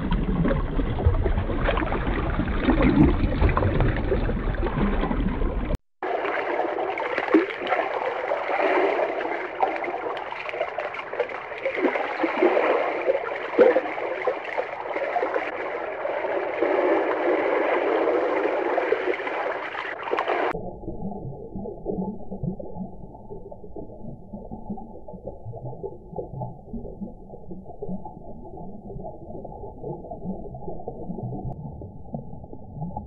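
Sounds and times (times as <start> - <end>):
muffled underwater sound: 0.0 - 33.0
underwater bubbling and gurgling: 0.0 - 33.0.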